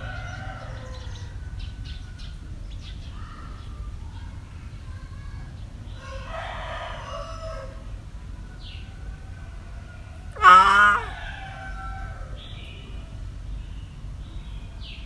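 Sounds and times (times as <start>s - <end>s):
cat meowing: 10.4s - 11.1s.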